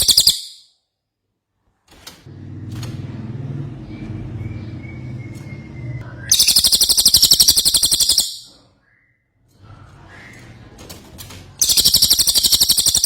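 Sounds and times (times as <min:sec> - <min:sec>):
bird high-pitched rapid trill: 0:00.0 - 0:00.7, 0:04.4 - 0:08.6, 0:11.6 - 0:13.0.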